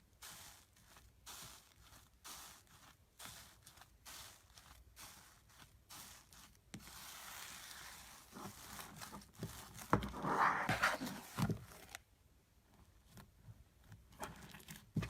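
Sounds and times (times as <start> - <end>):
slime crackling rustle: 0.1 - 10.0.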